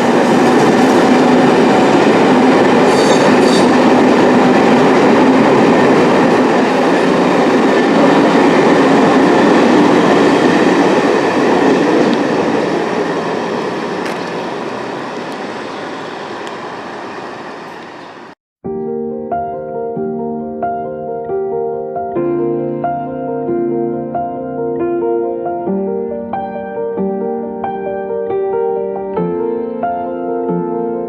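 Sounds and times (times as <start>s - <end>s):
train wheels clattering on rails: 0.0s - 15.5s.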